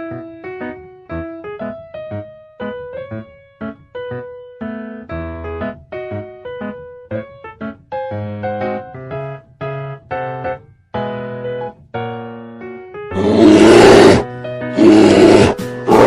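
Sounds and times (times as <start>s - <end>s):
light piano music: 0.0s - 16.0s
animal roar sound effect: 13.2s - 16.0s.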